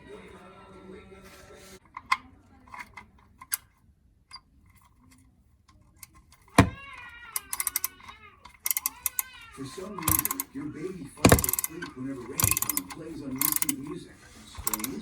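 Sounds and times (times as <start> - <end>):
ratchet clicks: 6.3 - 9.4, 10.0 - 10.5, 11.2 - 13.8, 14.6 - 15.0
metal tools clinking: 9.9 - 15.0.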